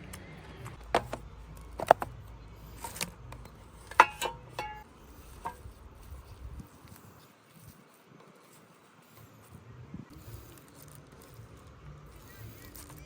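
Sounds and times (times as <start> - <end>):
low steady hum: 0.0 - 13.0
dishes and utensils clinking: 3.9 - 4.8.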